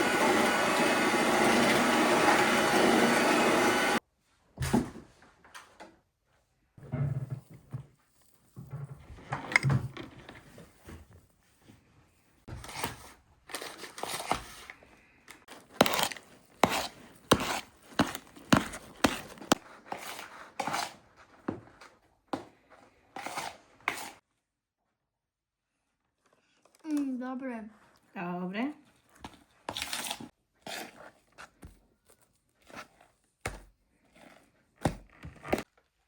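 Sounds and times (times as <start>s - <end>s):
rustling and handling noise: 7.3s - 24.2s, 28.7s - 36.0s
knife chopping on cutting board: 15.8s - 20.9s.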